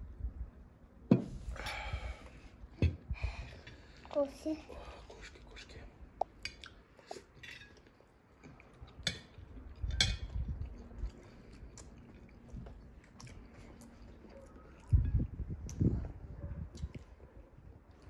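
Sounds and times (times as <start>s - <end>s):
chewing: 6.5s - 18.0s.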